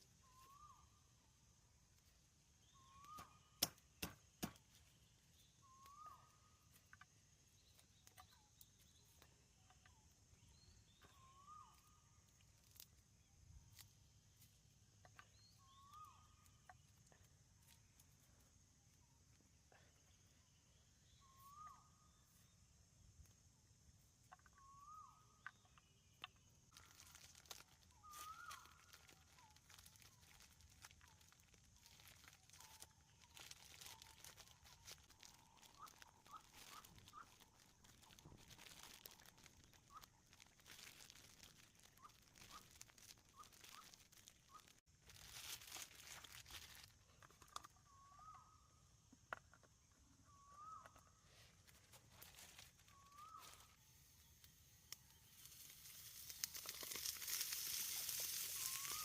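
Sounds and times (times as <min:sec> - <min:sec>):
bird calling: 0:00.0 - 0:01.1, 0:02.6 - 0:12.2, 0:15.0 - 0:17.8, 0:21.0 - 0:22.5, 0:24.2 - 0:44.8, 0:46.7 - 0:48.9, 0:49.6 - 0:59.0
clicks and rustles: 0:26.2 - 0:47.8, 0:55.4 - 0:59.0
faint high hiss: 0:53.2 - 0:59.0.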